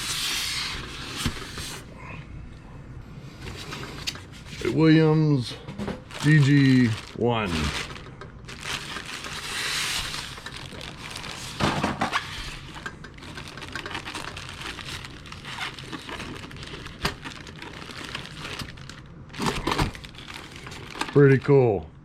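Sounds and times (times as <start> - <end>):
packaging rustling and crinkling: 5.9 - 21.6.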